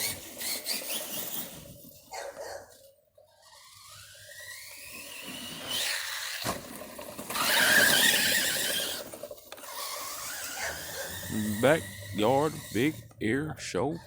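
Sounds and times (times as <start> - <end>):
electric toy truck motor whining: 0.0 - 13.2
tyres spinning: 3.5 - 14.0.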